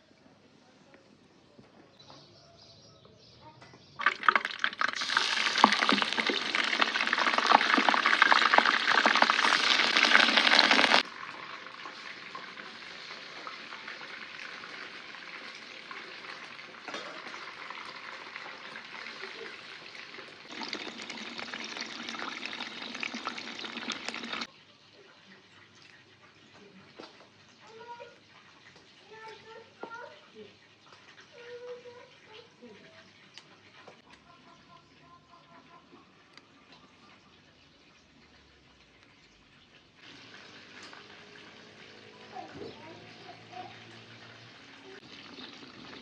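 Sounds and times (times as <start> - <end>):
food sizzling in hot oil: 4.0 - 24.6, 39.8 - 46.0.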